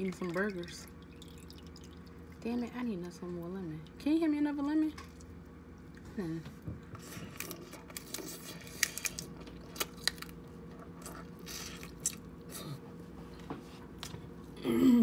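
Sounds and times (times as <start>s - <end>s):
chewing and smacking: 7.0s - 12.8s.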